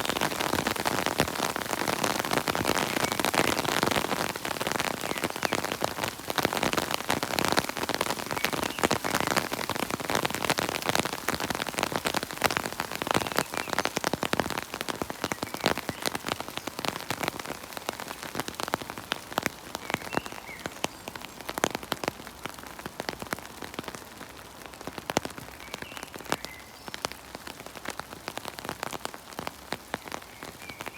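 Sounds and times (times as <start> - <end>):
rain dripping in a forest: 0.0 - 30.9.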